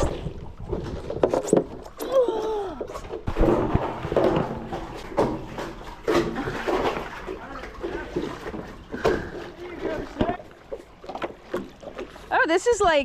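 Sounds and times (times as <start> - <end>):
seawater rushing and splashing: 3.4 - 13.0.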